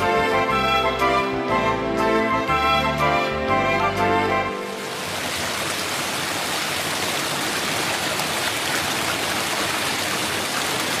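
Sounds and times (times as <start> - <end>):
water pouring and splashing: 4.6 - 11.0.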